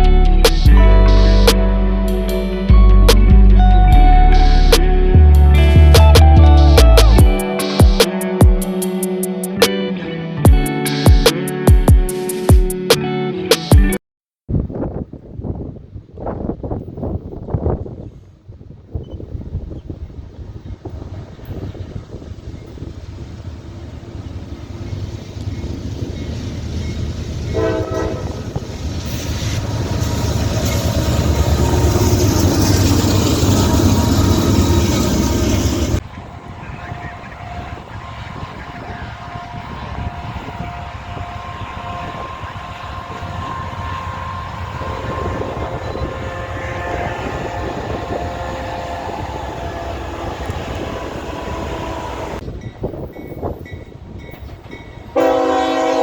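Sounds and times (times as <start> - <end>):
train horn blast: 0.0 - 9.7, 27.5 - 52.4, 55.2 - 56.0
train rumbling past: 0.0 - 9.7, 14.8 - 56.0
steady horn-like tone: 27.5 - 52.4, 55.2 - 56.0.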